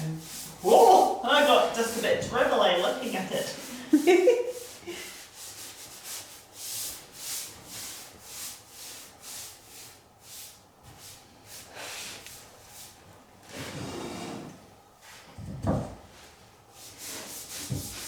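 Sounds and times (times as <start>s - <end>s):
rubbing stain into wooden floor: 0.0s - 13.0s, 16.8s - 18.0s.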